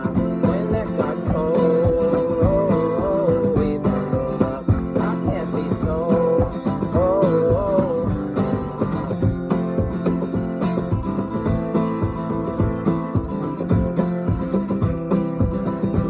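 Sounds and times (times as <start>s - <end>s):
person singing: 0.0s - 9.3s
acoustic guitar strumming: 0.0s - 16.0s
cajon beat: 0.0s - 16.0s.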